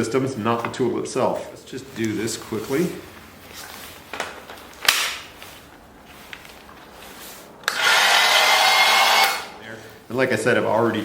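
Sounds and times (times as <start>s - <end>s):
sharp plastic snap: 4.8s - 5.3s.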